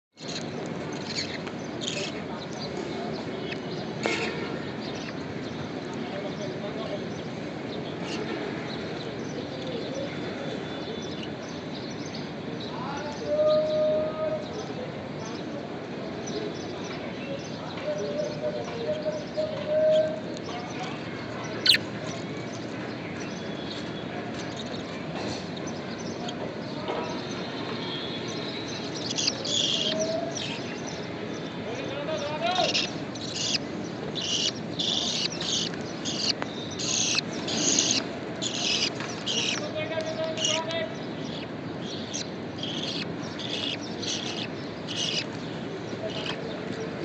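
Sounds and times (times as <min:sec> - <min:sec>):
budgies chirping: 0:00.2 - 0:03.9, 0:18.0 - 0:24.8, 0:28.2 - 0:47.0.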